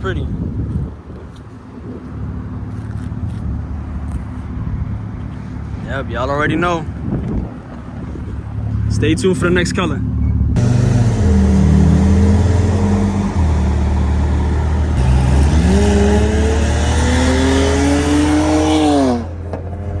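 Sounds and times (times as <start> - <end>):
wind noise: 0.0 - 18.6
road noise: 0.0 - 20.0
car engine accelerating: 0.7 - 20.0.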